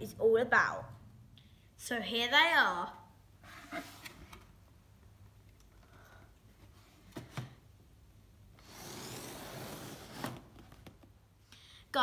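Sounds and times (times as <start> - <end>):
cardboard scraping rustle: 8.6 - 10.9.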